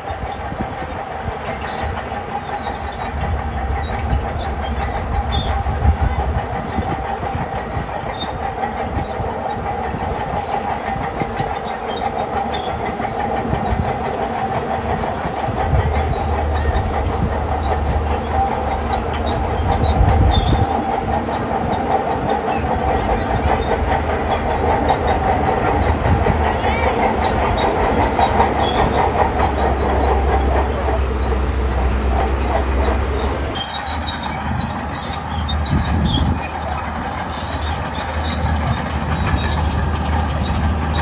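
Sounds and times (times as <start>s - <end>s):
steel tracks clanking: 0.0s - 41.0s
diesel engine rumble: 1.5s - 7.3s, 14.7s - 41.0s.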